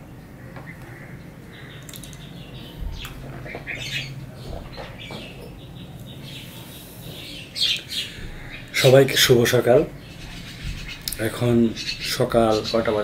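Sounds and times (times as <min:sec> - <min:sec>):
birds calling: 0:00.0 - 0:13.0
steady low hum: 0:00.0 - 0:13.0
soft low thumps: 0:02.3 - 0:06.4, 0:08.1 - 0:12.5.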